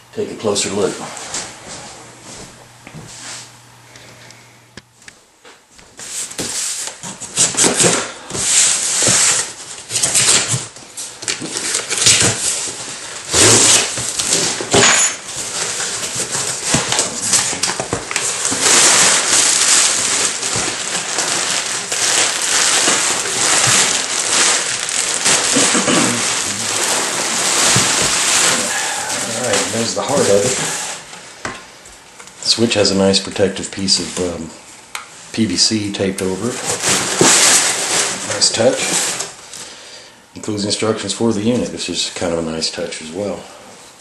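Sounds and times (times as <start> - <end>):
packing material crinkling: 6.0 - 31.1, 35.7 - 39.6.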